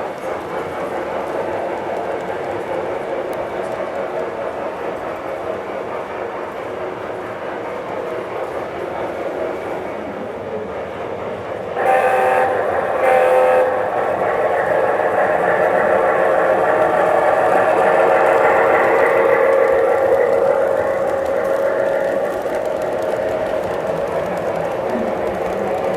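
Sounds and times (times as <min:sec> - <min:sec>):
model train running: 0:00.0 - 0:25.9
train horn blasts: 0:11.8 - 0:14.0.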